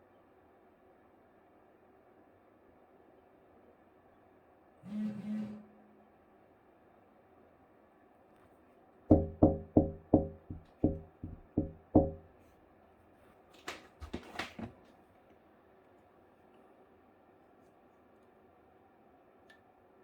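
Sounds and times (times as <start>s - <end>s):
sharp ringing knocks: 9.1s - 12.3s.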